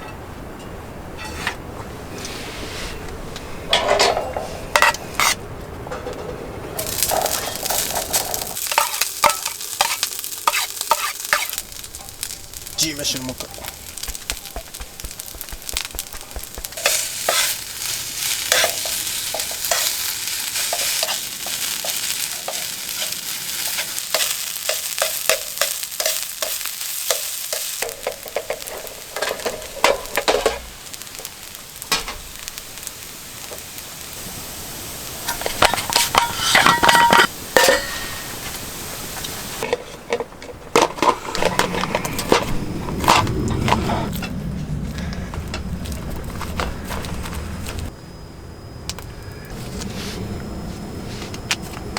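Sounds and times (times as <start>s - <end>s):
utensil scraping a pan: 1.1s - 3.1s, 3.8s - 5.4s, 6.8s - 12.4s, 13.4s - 30.7s, 35.3s - 38.4s
food sizzling in a pan: 6.8s - 39.7s.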